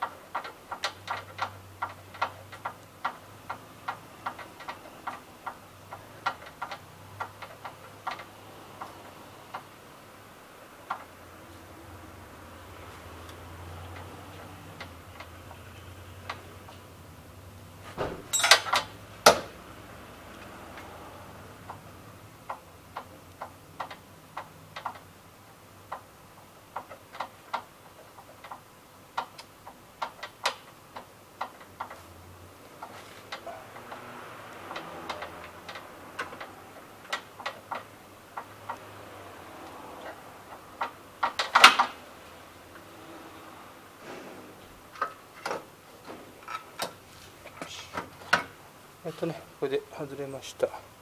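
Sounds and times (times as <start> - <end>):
tool clicks and metal taps: 0.0 - 9.8, 13.2 - 16.9, 18.0 - 19.5, 21.6 - 25.1, 25.9 - 32.1, 32.7 - 42.0, 44.9 - 49.4.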